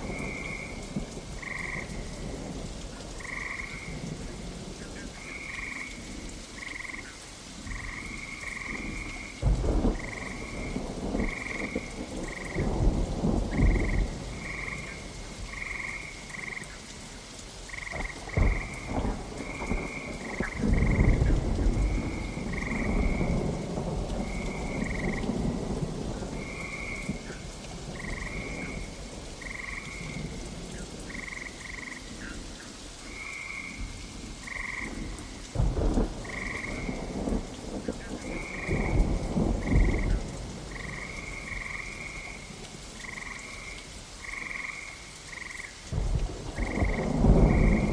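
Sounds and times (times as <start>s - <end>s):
thunder rumbling: 0.0s - 2.6s, 7.6s - 16.6s, 17.7s - 31.4s, 33.7s - 43.7s, 45.9s - 47.9s
frogs croaking: 0.0s - 47.9s
steady rain: 0.0s - 47.9s.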